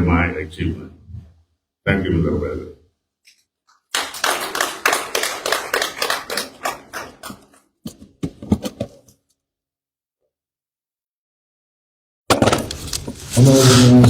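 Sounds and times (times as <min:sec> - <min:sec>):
audience applause: 0:03.9 - 0:07.6.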